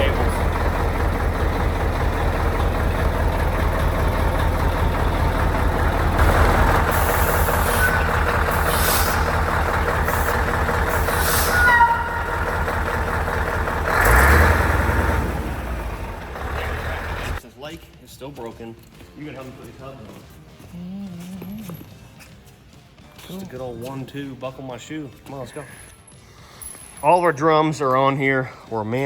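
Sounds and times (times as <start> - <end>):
diesel truck engine idling: 0.0 - 17.4
air brake hissing: 6.2 - 12.6
brief squeaks: 7.1 - 9.3.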